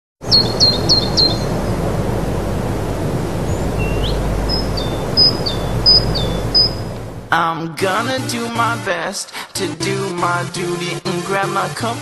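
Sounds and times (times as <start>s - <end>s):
birds chirping: 0.2s - 2.4s, 3.0s - 7.3s
rushing outdoor background noise: 0.2s - 7.4s.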